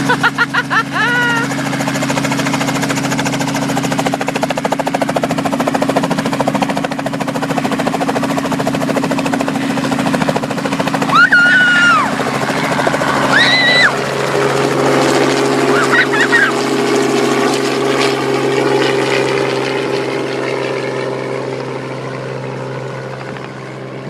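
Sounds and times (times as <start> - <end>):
helicopter rotor chop: 0.0 - 24.0
high-pitched human cry: 0.2 - 1.5, 11.1 - 12.2, 13.3 - 14.0, 15.7 - 16.6.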